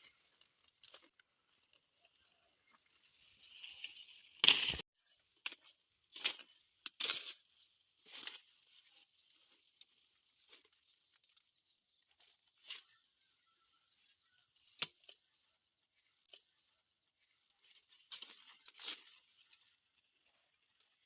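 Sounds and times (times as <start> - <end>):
plant material tearing and rustling: 17.7 - 19.7.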